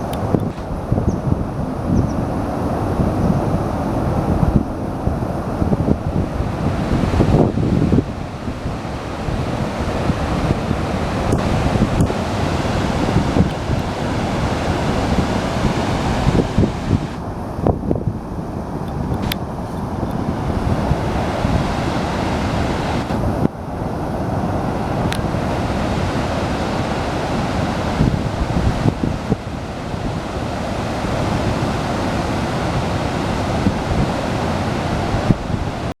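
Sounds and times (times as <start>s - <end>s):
wind buffeting microphone: 0.0s - 35.9s
river water pouring over a weir: 6.1s - 17.2s, 20.2s - 35.4s.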